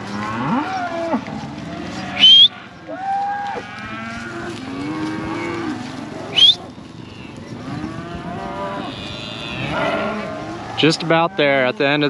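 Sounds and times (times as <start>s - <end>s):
cattle mooing: 0.0s - 12.0s
sharp high-pitched squeal: 2.2s - 2.5s.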